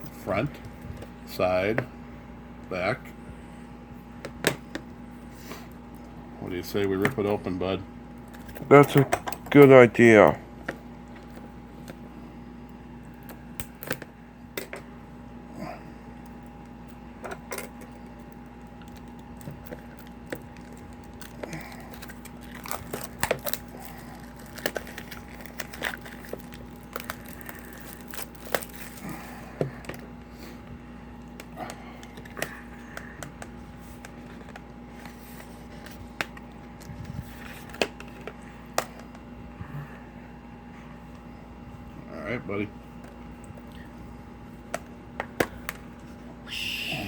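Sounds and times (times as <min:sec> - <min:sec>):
plastic shrink-wrap crackling: 0:18.7 - 0:29.1.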